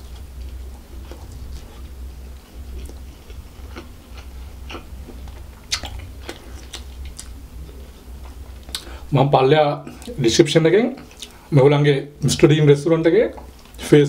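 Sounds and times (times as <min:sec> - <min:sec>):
chewing with wet mouth clicks: 0:00.0 - 0:08.9, 0:11.0 - 0:11.4
low steady hum: 0:00.0 - 0:14.0.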